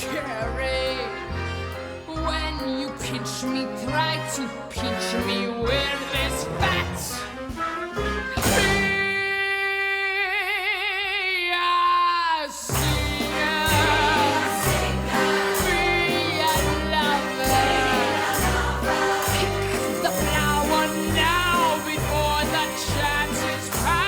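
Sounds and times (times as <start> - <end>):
band playing beat and bass: 12.7 - 24.0.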